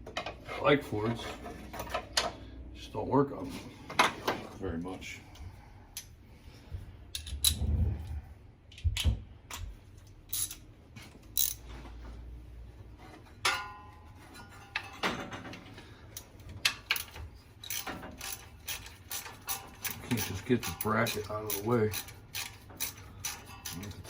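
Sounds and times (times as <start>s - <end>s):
ratchet wrench clicking: 10.3s - 10.6s, 11.3s - 11.6s, 16.9s - 23.8s
ringing metal clank: 13.4s - 15.1s.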